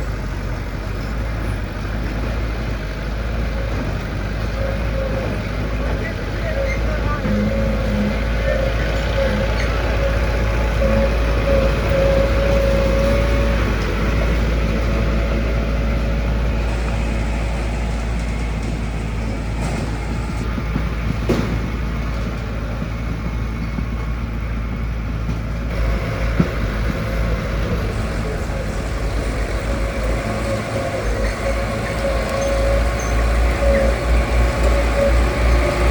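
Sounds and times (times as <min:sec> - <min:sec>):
diesel construction machinery running: 0:00.0 - 0:35.9
machinery whine: 0:00.0 - 0:35.9.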